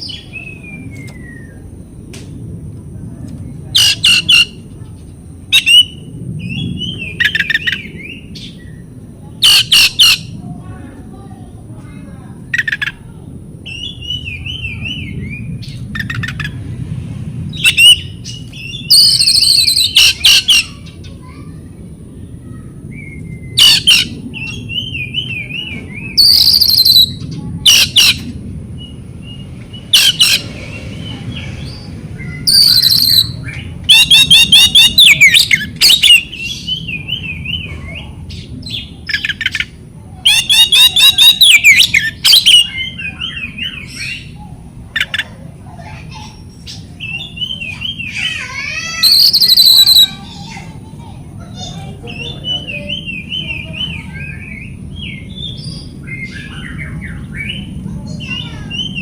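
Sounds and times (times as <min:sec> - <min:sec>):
songbird harsh calls and trills: 0:00.0 - 0:01.7, 0:03.4 - 0:10.4, 0:12.4 - 0:16.6, 0:17.5 - 0:59.0.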